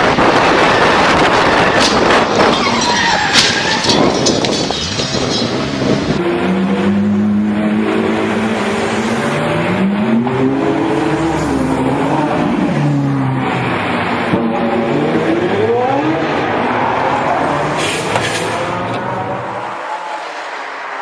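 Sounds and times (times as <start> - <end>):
wind and road noise: 0.0 - 21.0
car engine revving: 5.8 - 21.0.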